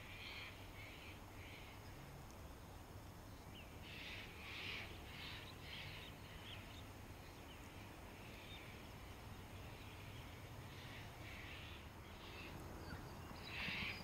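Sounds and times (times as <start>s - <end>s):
distant harsh bird calls: 3.4s - 14.0s.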